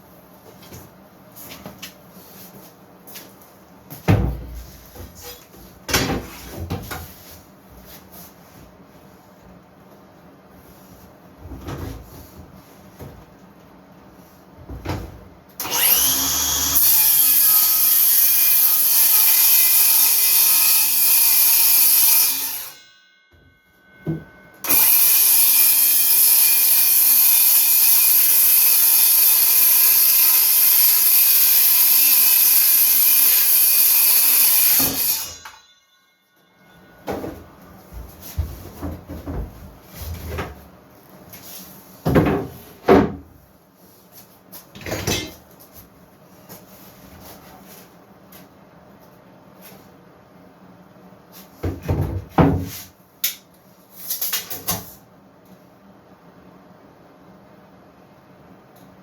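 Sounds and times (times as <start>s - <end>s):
power saw cutting wood: 15.6s - 22.8s, 24.6s - 35.6s.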